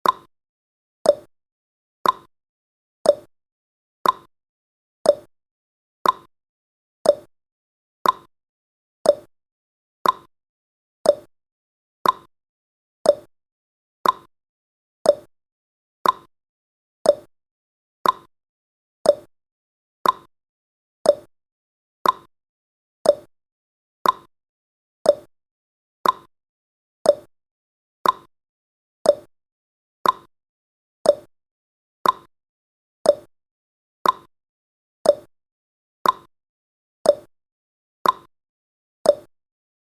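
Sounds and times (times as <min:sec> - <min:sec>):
clock ticking: 0:02.0 - 0:02.3, 0:04.0 - 0:04.3, 0:06.0 - 0:06.3, 0:08.0 - 0:08.3, 0:10.0 - 0:10.3, 0:12.0 - 0:12.3, 0:14.0 - 0:14.3, 0:16.0 - 0:16.3, 0:18.0 - 0:18.3, 0:20.0 - 0:20.3, 0:21.1 - 0:21.3, 0:22.0 - 0:22.3, 0:24.0 - 0:24.3, 0:26.0 - 0:26.3, 0:28.0 - 0:28.3, 0:29.1 - 0:29.3, 0:30.0 - 0:30.3, 0:31.1 - 0:31.3, 0:32.0 - 0:32.3, 0:33.1 - 0:33.3, 0:34.0 - 0:34.3, 0:35.1 - 0:35.3, 0:36.0 - 0:36.3, 0:38.0 - 0:38.3.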